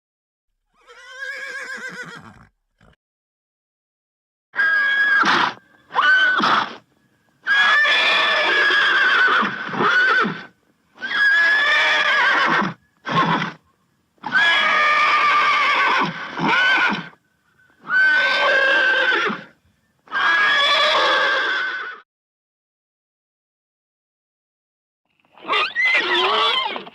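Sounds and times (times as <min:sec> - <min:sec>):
horse whinnying: 0:00.7 - 0:03.0, 0:04.6 - 0:06.8, 0:07.4 - 0:13.6, 0:14.2 - 0:17.2, 0:17.8 - 0:22.0, 0:25.4 - 0:26.9.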